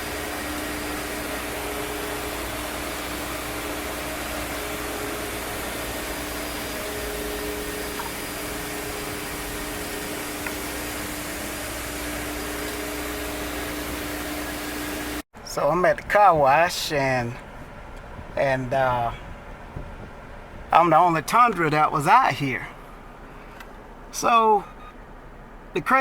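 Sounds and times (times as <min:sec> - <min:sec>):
low hum: 0:00.0 - 0:15.2
car wash rushing noise: 0:00.0 - 0:26.0.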